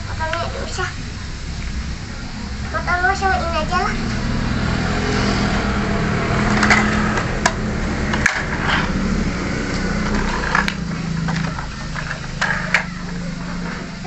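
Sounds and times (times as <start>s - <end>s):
toy motor humming: 9.9s - 14.0s.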